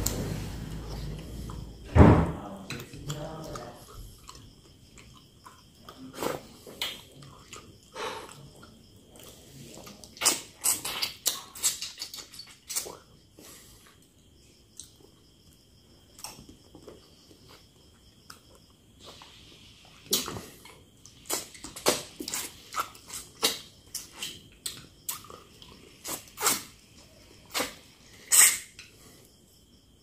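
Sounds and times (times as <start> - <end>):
wet smacking and chewing: 2.8 - 13.2, 14.8 - 15.1, 20.0 - 28.6.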